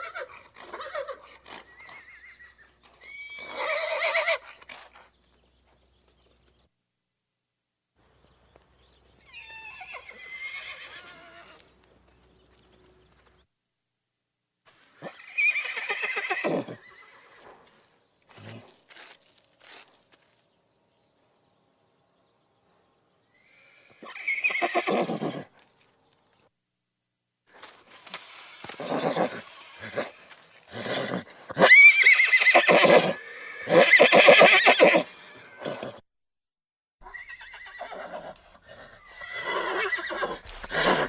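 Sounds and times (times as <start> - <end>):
horse whinnying: 0.0 - 4.7, 9.2 - 11.6, 15.0 - 17.4, 23.4 - 25.5, 28.4 - 36.0, 37.0 - 41.0.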